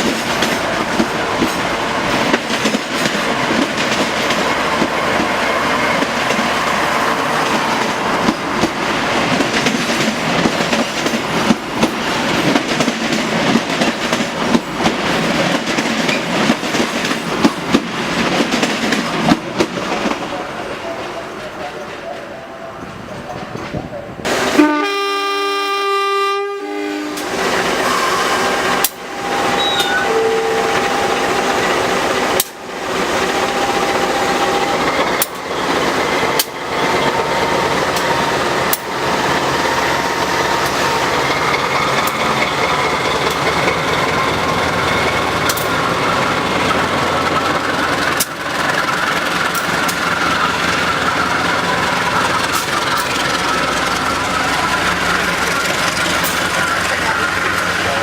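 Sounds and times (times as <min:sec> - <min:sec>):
train rushing rattle: 0:00.0 - 0:25.7, 0:27.0 - 0:58.0
train horn: 0:24.5 - 0:31.8.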